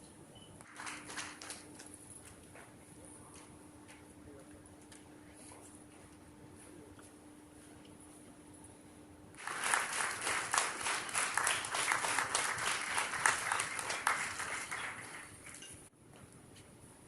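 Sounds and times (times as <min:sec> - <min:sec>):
audience applauding: 0:00.7 - 0:01.6, 0:09.4 - 0:15.6.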